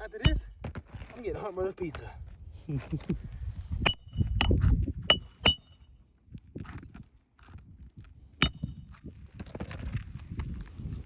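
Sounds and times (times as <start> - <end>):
metal tools striking metal: 0.0 - 0.6, 3.9 - 5.8.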